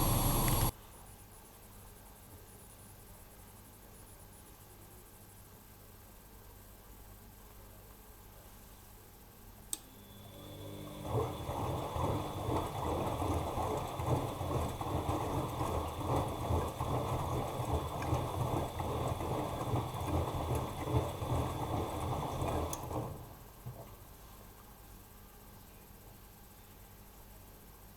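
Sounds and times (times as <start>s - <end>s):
washing machine motor whine: 0.0s - 0.7s, 9.8s - 24.0s.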